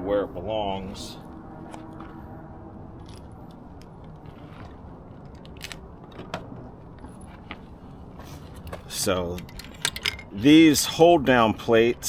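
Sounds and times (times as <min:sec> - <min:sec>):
small metal parts clicking: 0:08.6 - 0:10.4.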